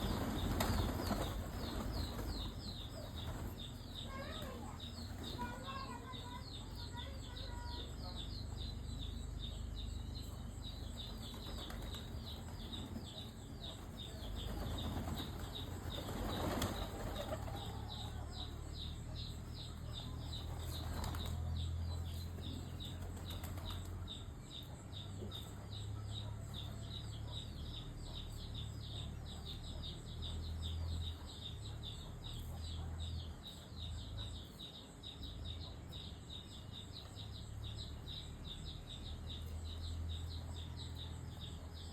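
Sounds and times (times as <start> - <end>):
bird wings flapping: 0.0 - 5.6, 11.1 - 18.0, 20.4 - 21.4, 22.9 - 24.0.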